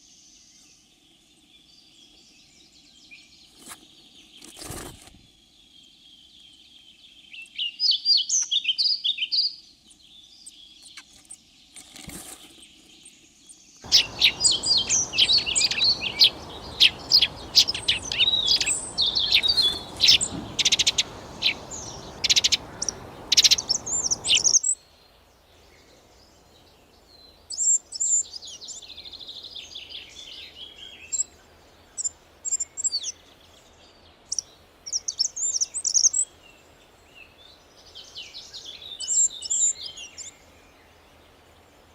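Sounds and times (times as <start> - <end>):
steady hiss: 13.9 - 24.6
birds chirping and singing: 13.9 - 24.7.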